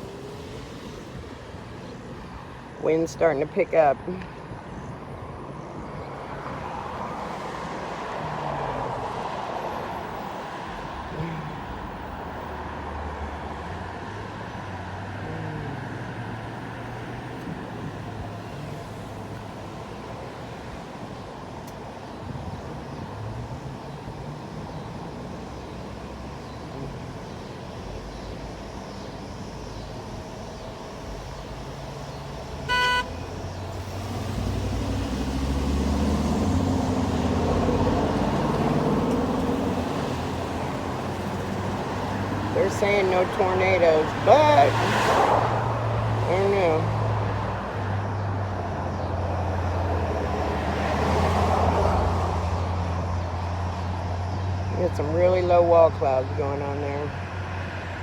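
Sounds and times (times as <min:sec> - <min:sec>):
distant traffic: 0:00.0 - 0:58.0
car horn toot: 0:32.7 - 0:33.2.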